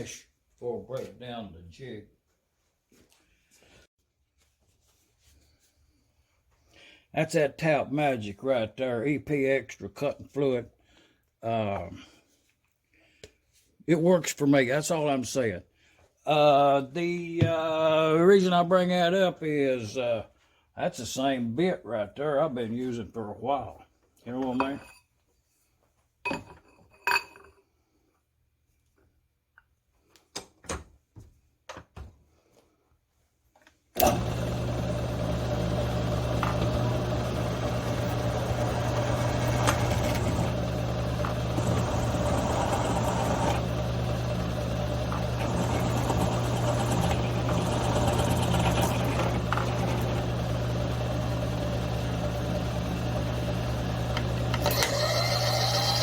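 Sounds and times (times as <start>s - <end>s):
milling machine motor humming: 34.0s - 56.0s.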